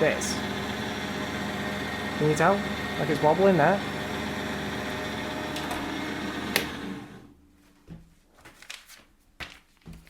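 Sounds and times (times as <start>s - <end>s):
drill motor running: 0.0s - 7.3s.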